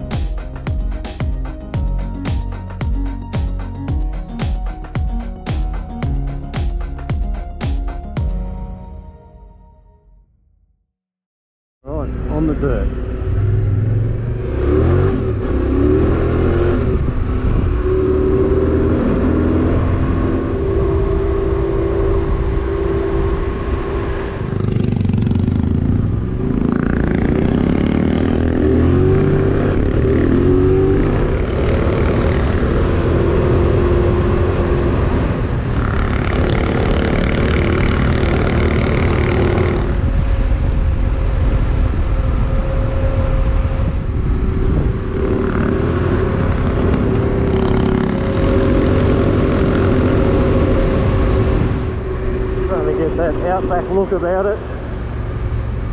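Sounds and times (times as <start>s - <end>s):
motorcycle engine accelerating: 12.1s - 52.9s.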